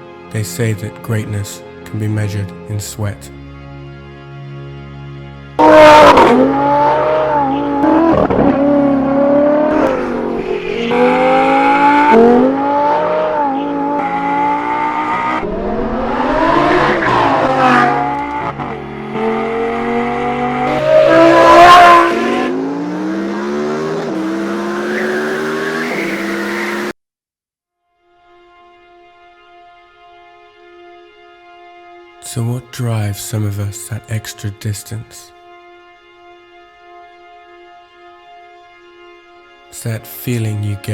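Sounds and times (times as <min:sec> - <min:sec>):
sports car engine accelerating: 0:05.6 - 0:26.9.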